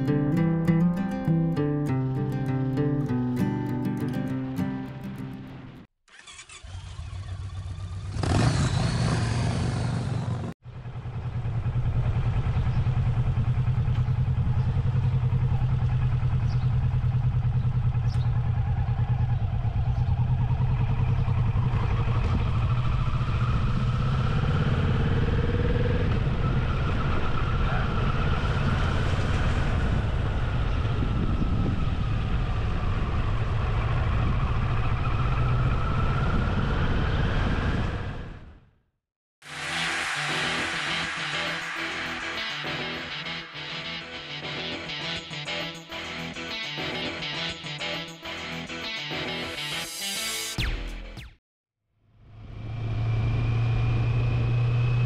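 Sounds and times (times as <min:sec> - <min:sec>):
motorcycle engine revving: 0:06.1 - 0:38.4
motorcycle engine running: 0:06.3 - 0:36.4.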